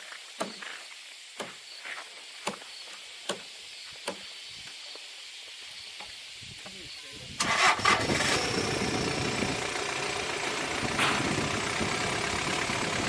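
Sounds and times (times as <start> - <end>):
steady hiss: 0.0 - 7.4.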